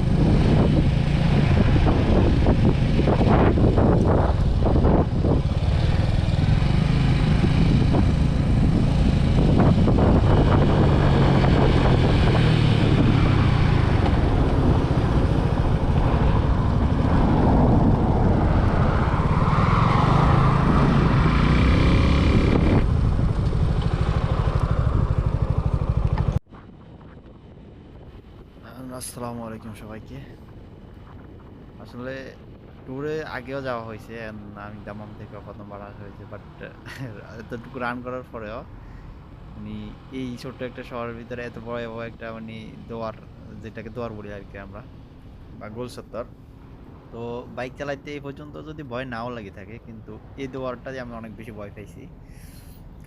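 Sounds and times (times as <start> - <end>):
motorcycle engine running: 0.0 - 19.2, 20.1 - 29.2
wind and road noise: 0.0 - 53.0.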